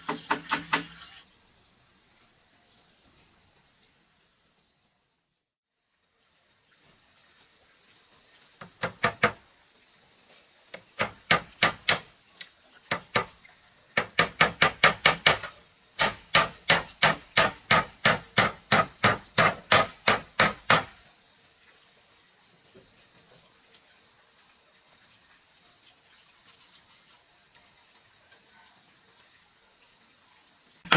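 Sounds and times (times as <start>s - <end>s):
hammer striking wood: 0.0s - 0.9s, 8.8s - 9.4s, 11.0s - 12.1s, 14.0s - 21.0s
crickets chirping: 0.0s - 30.9s.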